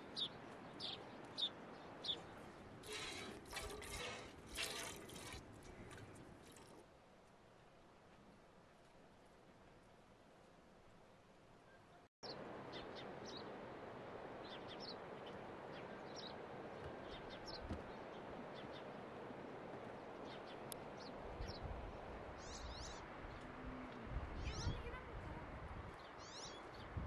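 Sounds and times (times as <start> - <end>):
small birds chirping: 0.0 - 3.2, 14.4 - 19.0, 24.4 - 25.1, 25.9 - 27.0.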